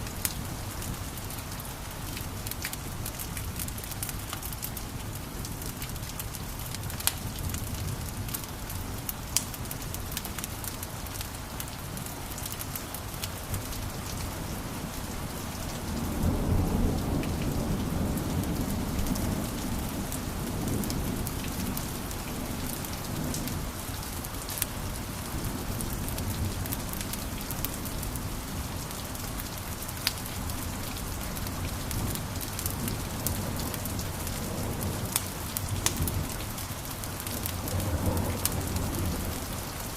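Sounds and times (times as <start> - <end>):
wood fire crackling: 0.0 - 16.1, 19.0 - 34.4, 35.1 - 39.9.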